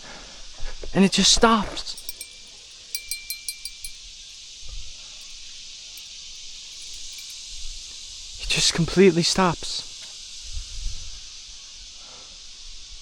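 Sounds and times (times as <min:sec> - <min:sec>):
fishing-rod bell jingling: 0:01.8 - 0:04.6, 0:05.2 - 0:07.6.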